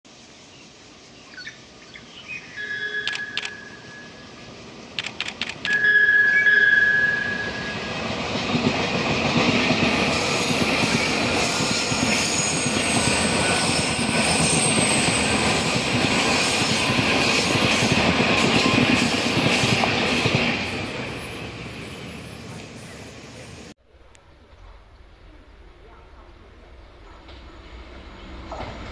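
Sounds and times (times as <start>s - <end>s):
train rumbling past: 0.1s - 23.8s, 24.6s - 28.9s
train horn blast: 5.7s - 7.9s.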